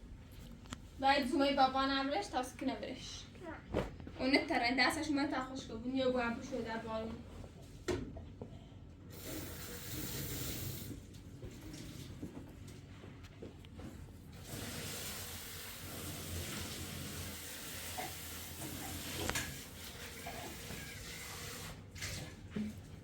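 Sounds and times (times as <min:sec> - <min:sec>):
water hissing: 0:09.1 - 0:11.0, 0:14.4 - 0:21.8.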